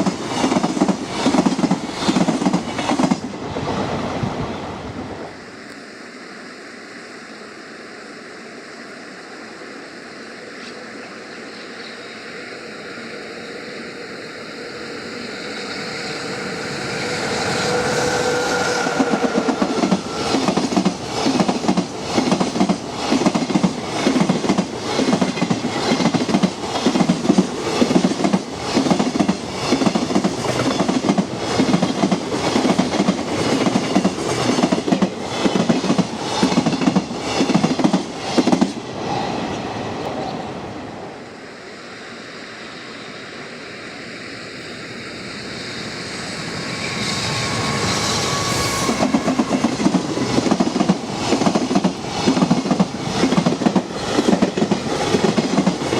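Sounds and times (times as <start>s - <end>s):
train wheels clickety-clack: 0.0s - 3.8s, 17.0s - 38.9s, 46.7s - 55.9s
thin steady whine: 4.5s - 28.6s, 29.2s - 55.8s.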